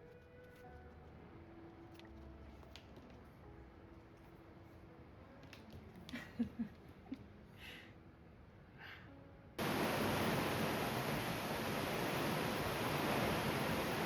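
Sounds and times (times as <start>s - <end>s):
heavy rain hissing: 9.6s - 14.0s.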